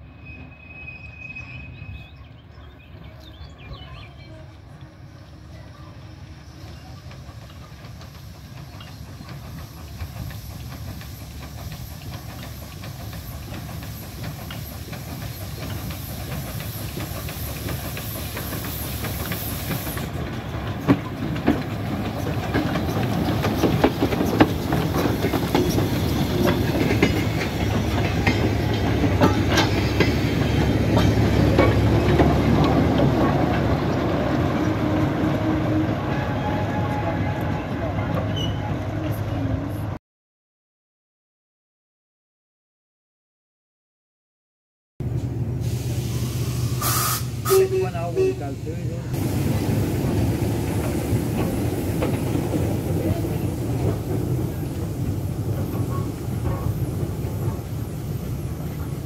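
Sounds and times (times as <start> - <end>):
diesel locomotive drone: 0.0 - 40.0, 45.0 - 59.0
train running past: 0.0 - 40.0, 45.0 - 59.0
wheels clicking over rail joints: 6.6 - 35.0.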